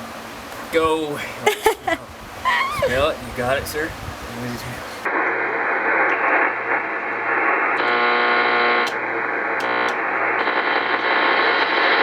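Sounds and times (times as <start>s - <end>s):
radio hiss and static: 0.0s - 12.0s.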